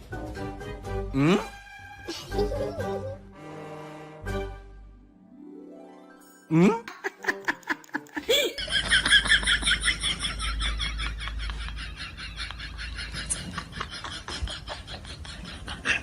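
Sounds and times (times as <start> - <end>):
background music: 0.0 - 9.8
rapid laughing: 6.9 - 16.0.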